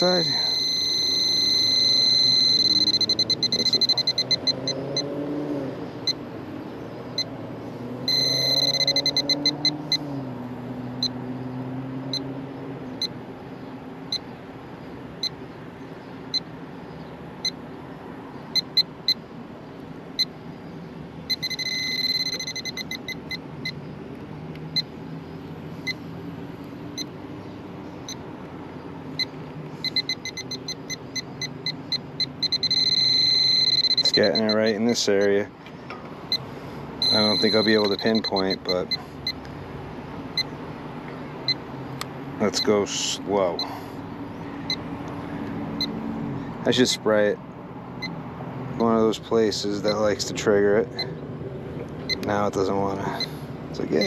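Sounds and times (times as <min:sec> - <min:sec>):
fast high-pitched beeping: 0:00.0 - 0:05.1, 0:08.1 - 0:10.0, 0:21.3 - 0:23.8, 0:29.2 - 0:35.4, 0:37.0 - 0:39.4
leak detector ticking: 0:00.0 - 0:05.2, 0:06.0 - 0:06.2, 0:08.1 - 0:10.0, 0:15.2 - 0:15.4, 0:16.3 - 0:16.5, 0:18.5 - 0:19.3, 0:20.1 - 0:20.4, 0:21.3 - 0:23.8, 0:24.6 - 0:25.0, 0:25.8 - 0:26.1, 0:26.9 - 0:27.2, 0:28.0 - 0:28.3, 0:29.1 - 0:35.5, 0:36.3 - 0:39.6, 0:40.3 - 0:40.6, 0:41.4 - 0:43.8, 0:52.1 - 0:54.0.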